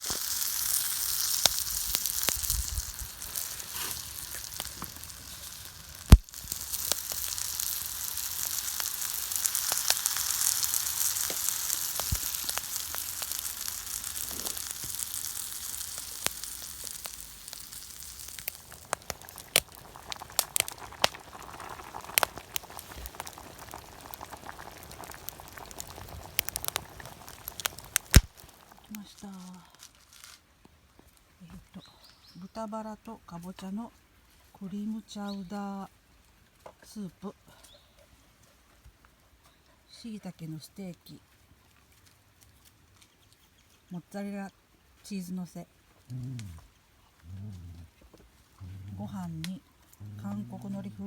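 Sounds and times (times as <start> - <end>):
food sizzling in a pan: 0.0 - 29.4.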